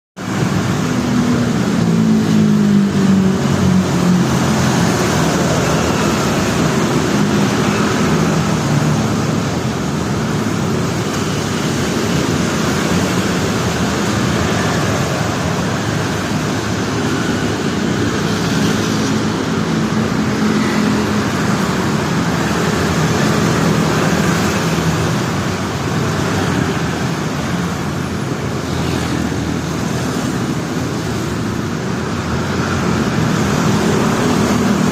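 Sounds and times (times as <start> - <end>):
vehicle engines passing: 0.2 - 34.9.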